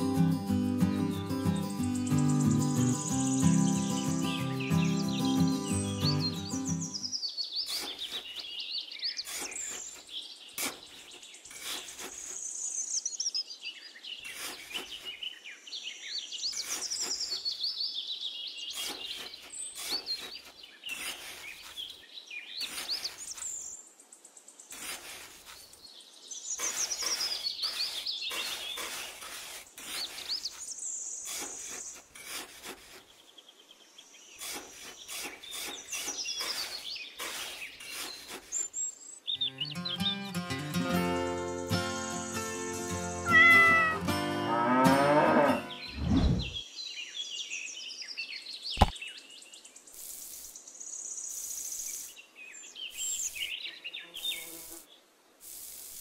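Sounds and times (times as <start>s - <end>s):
birds chirping and singing: 0.0s - 49.9s
trowel scraping mortar: 7.7s - 8.5s, 9.2s - 12.5s, 14.2s - 15.2s, 16.6s - 17.5s, 18.8s - 21.9s, 22.6s - 23.6s, 24.7s - 25.7s, 26.6s - 33.2s, 34.4s - 38.8s.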